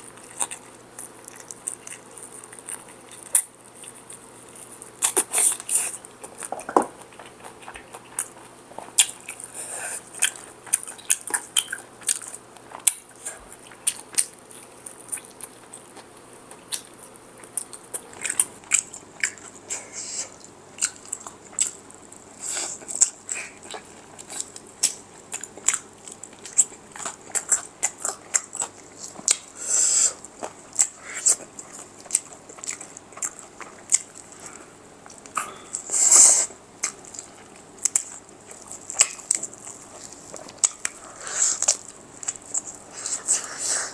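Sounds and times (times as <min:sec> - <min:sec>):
chewing crispy fried chicken: 0:00.0 - 0:43.9.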